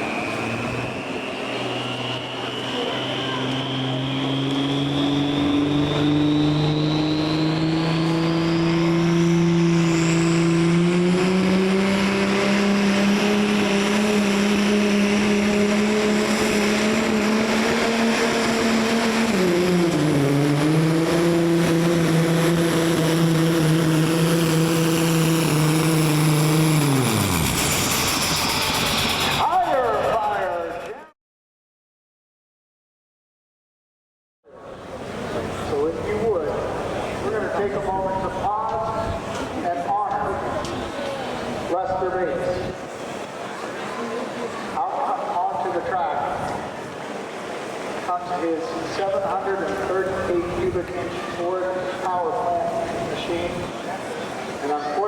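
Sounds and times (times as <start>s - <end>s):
engine at full throttle: 0.0s - 31.1s, 34.8s - 55.0s
high whine: 0.0s - 31.1s.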